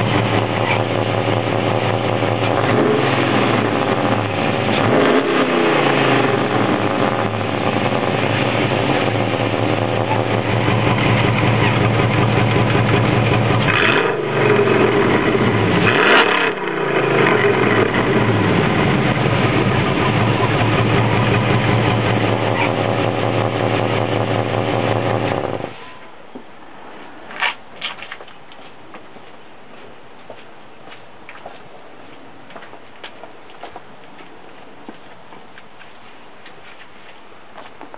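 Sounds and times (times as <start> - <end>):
truck engine revving: 0.0 - 25.7.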